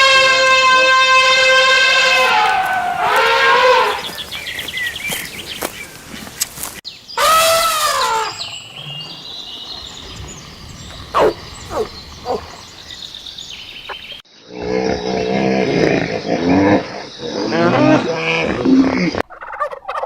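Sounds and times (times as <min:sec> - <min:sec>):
loud animal call: 0:00.0 - 0:05.7, 0:07.2 - 0:16.9
turkeys gobbling: 0:00.0 - 0:08.3, 0:09.8 - 0:14.2, 0:19.2 - 0:20.0
quick chirps: 0:09.7 - 0:14.2.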